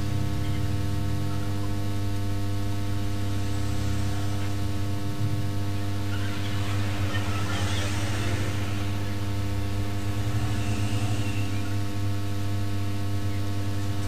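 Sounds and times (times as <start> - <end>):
power supply electrical hum: 0.0 - 14.0.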